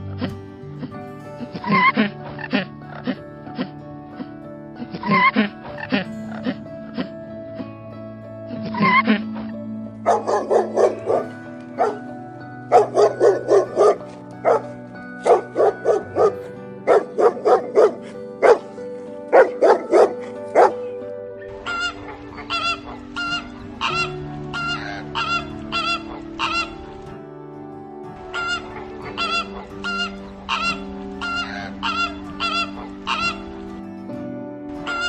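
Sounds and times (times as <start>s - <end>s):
background music: 0.0s - 35.0s
flamingos honking: 1.4s - 3.8s, 8.6s - 27.1s, 28.1s - 34.0s, 34.7s - 35.0s
dog barking: 10.0s - 12.1s, 12.7s - 21.0s.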